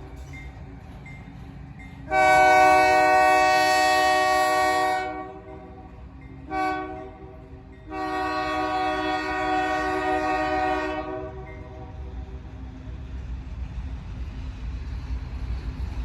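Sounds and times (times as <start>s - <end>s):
train low rumble: 0.0s - 16.0s
locomotive air horn blasts: 2.1s - 5.8s, 6.5s - 11.9s.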